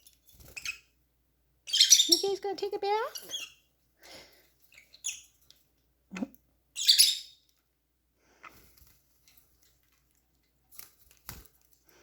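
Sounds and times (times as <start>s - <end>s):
faint bird chirps: 6.8s - 7.4s.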